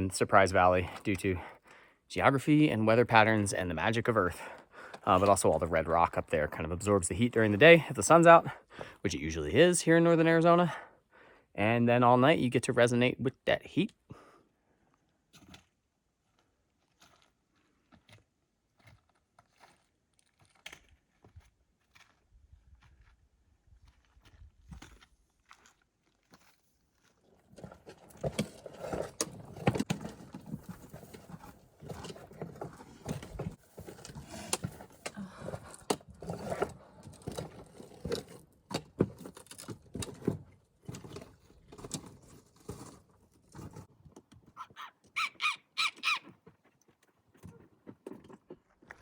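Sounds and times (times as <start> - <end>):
footsteps on rocky trail: 15.0 - 45.1, 46.2 - 49.0
short high squeaks: 44.6 - 46.3.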